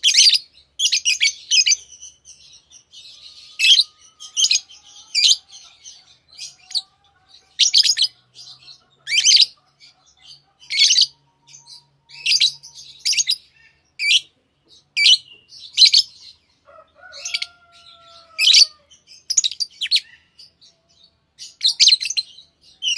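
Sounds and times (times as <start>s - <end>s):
parrots chirping: 0.0s - 22.9s.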